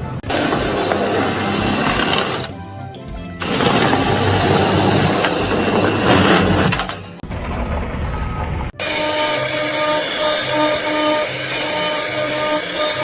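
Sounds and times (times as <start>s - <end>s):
loud mechanical machine noise: 0.0s - 2.7s, 3.4s - 13.0s.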